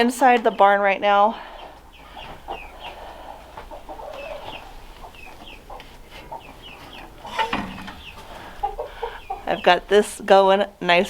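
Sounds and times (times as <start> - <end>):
chickens clucking softly: 1.3 - 10.2
loud chicken call: 1.4 - 9.7.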